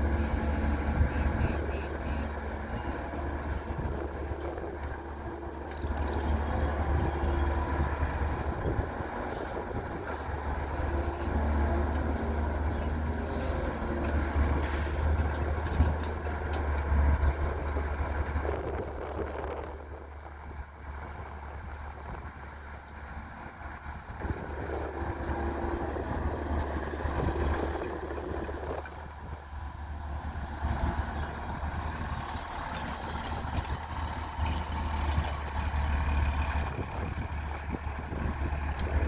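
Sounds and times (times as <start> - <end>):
excavator diesel engine droning: 0.0 - 39.0.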